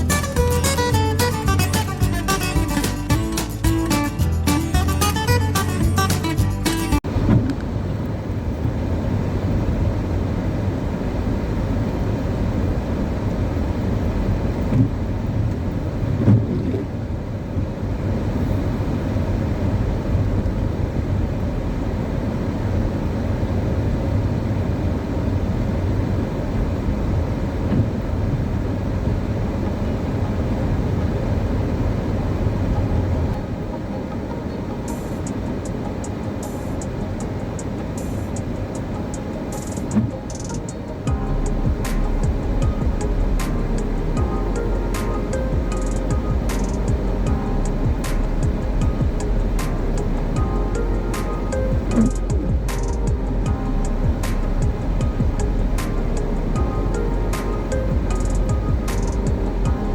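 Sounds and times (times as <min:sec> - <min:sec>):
acoustic guitar music: 0:00.0 - 0:07.0, 0:32.9 - 0:59.9
car engine and road rumble: 0:00.0 - 0:59.9.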